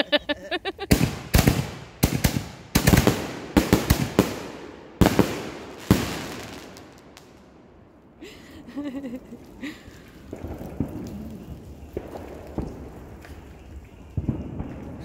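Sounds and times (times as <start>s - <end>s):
fireworks bangs with echo: 0.9s - 7.5s, 10.2s - 13.5s.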